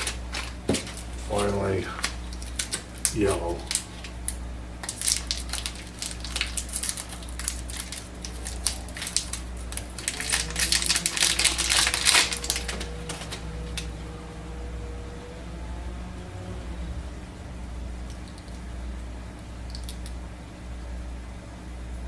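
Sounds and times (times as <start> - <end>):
plastic packaging crinkling: 0.0 - 14.0
faint steady hum: 0.0 - 22.0.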